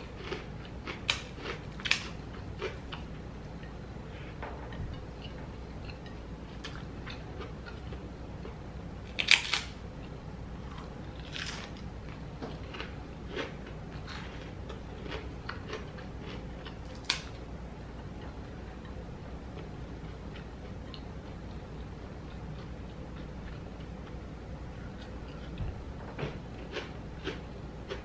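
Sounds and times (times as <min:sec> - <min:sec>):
person chewing crispy food: 0:00.0 - 0:03.2, 0:05.0 - 0:17.4, 0:26.2 - 0:28.0.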